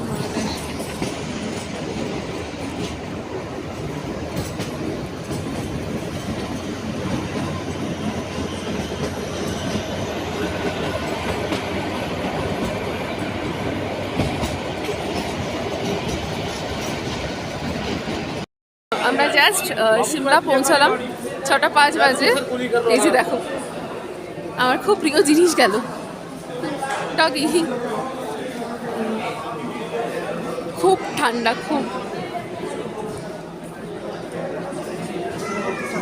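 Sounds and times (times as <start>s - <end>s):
train wheels rattling on rails: 0.0s - 18.4s.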